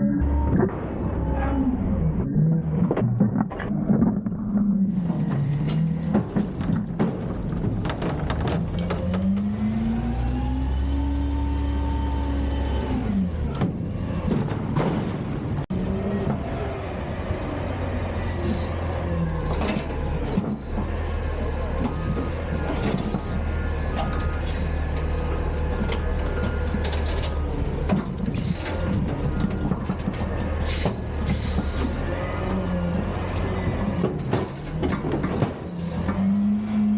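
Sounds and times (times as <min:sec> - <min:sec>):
garbage truck engine revving: 0:00.0 - 0:36.9
knocks and clanks: 0:02.6 - 0:09.8, 0:13.4 - 0:16.6, 0:19.4 - 0:36.6.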